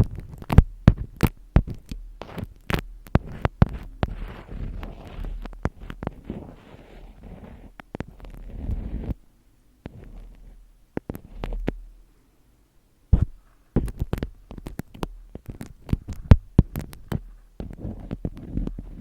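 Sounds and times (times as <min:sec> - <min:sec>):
tapping and clicking: 0:00.0 - 0:04.2, 0:13.2 - 0:19.0.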